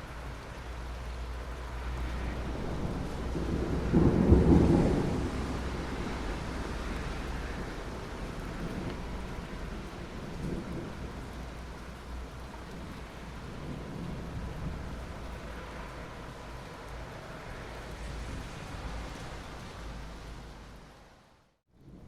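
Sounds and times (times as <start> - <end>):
steady rain falling: 0.0 - 22.0
thunder rolling: 2.3 - 11.3.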